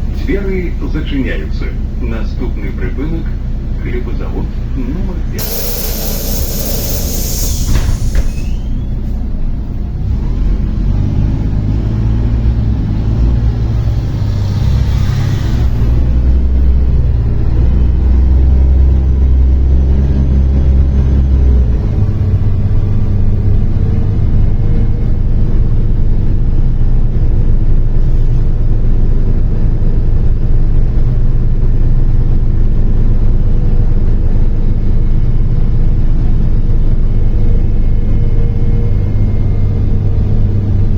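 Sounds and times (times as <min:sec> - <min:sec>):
bus diesel engine accelerating: 0:00.0 - 0:40.9
air hiss: 0:05.4 - 0:08.8.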